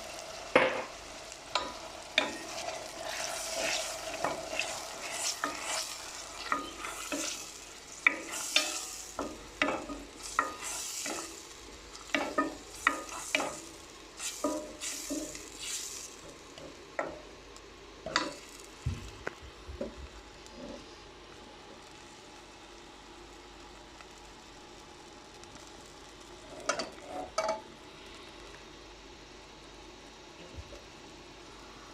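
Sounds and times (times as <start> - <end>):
light sizzle: 0.0 - 31.9
utensil scraping a pan: 1.6 - 11.3.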